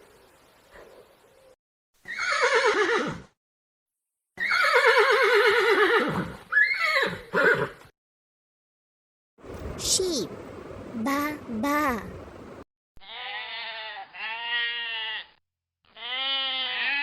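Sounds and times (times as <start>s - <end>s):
horse whinnying: 2.0s - 3.3s, 4.4s - 7.9s.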